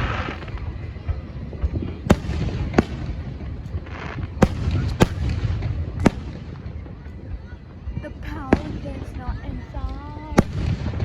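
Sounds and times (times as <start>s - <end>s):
crackling hiss: 0.0s - 6.8s
firework bangs: 0.0s - 11.0s.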